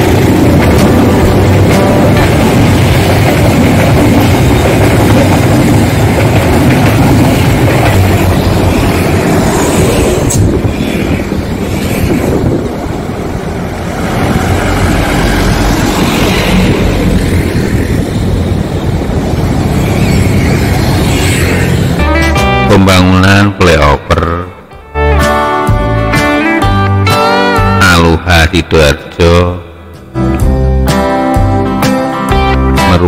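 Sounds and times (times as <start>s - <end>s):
truck passing: 0.0s - 22.8s
motorcycles passing: 0.0s - 22.9s
road traffic: 0.0s - 27.8s
passenger train rumbling on rails: 0.0s - 33.0s.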